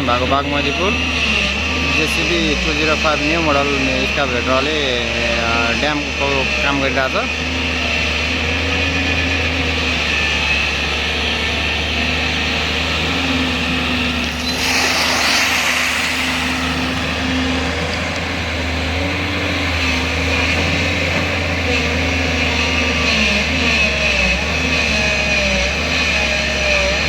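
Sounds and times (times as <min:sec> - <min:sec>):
excavator diesel engine running: 0:00.0 - 0:27.0
rushing noise: 0:12.6 - 0:21.0.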